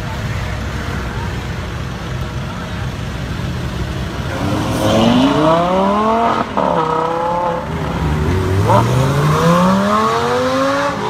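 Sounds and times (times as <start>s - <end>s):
car engine accelerating: 2.8s - 11.0s.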